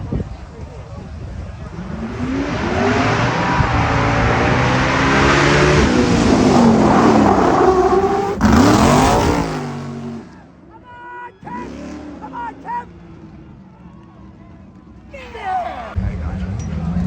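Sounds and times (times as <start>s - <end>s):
motor engines revving hard: 1.1s - 10.6s, 11.4s - 13.7s.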